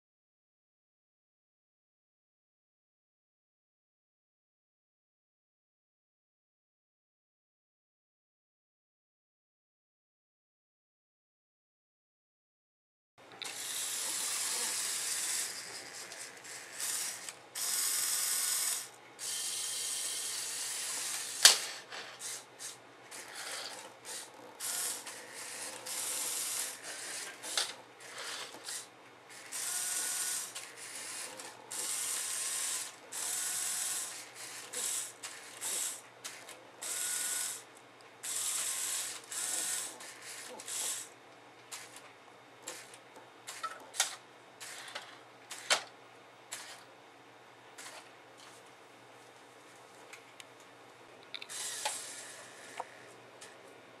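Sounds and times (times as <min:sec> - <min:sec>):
toy motors and gears whirring: 0:13.4 - 0:42.0, 0:42.6 - 0:45.9, 0:46.5 - 0:46.9, 0:47.8 - 0:48.1, 0:51.3 - 0:53.6.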